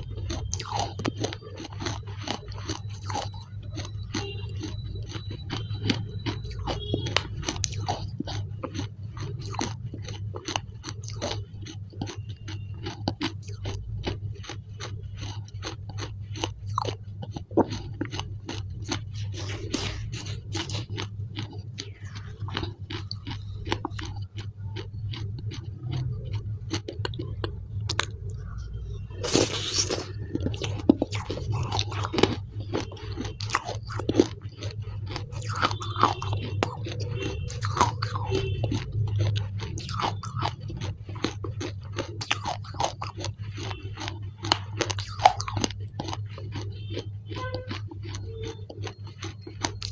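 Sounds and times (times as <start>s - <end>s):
chewing clay paste: 0.0s - 49.9s
wet mouth clicks: 0.0s - 49.9s.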